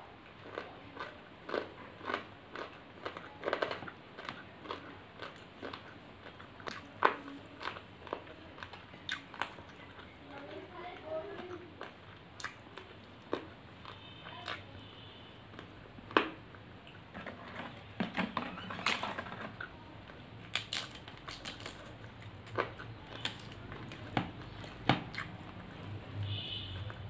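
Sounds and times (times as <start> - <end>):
person chewing food: 0.2 - 17.8, 18.8 - 27.0.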